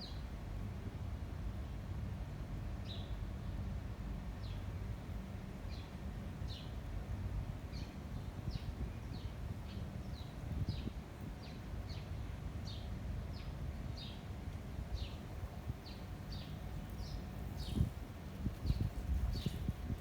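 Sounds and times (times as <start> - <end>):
wind rumbling on microphone: 8.5 - 11.9, 13.9 - 20.0.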